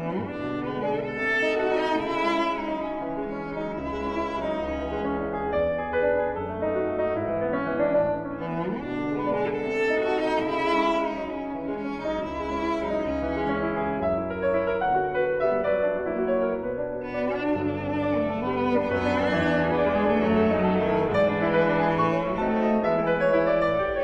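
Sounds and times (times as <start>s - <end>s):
bowed strings: 0.0s - 24.0s
piano: 0.0s - 24.0s.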